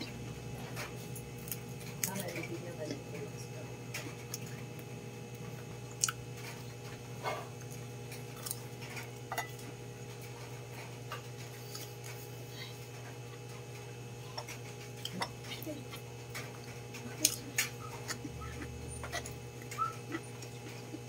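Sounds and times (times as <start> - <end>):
steady low hum: 0.0 - 21.0
chewing and mouth clicks: 4.0 - 9.6, 13.0 - 21.0.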